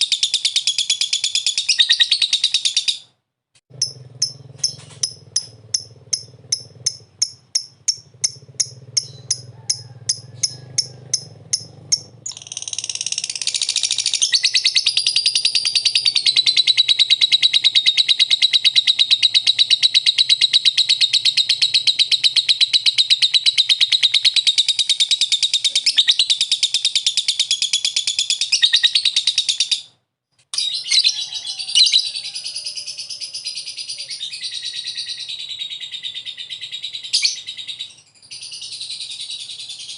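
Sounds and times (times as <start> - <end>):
bird chattering trill: 0.0 - 3.1, 3.7 - 29.9
bird chirping: 0.0 - 39.9.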